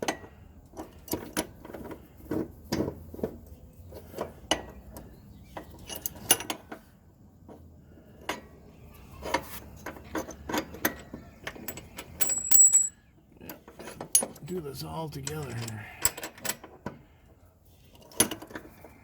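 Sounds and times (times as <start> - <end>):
metal tools clinking and knocking: 10.1 - 13.0, 13.6 - 16.8.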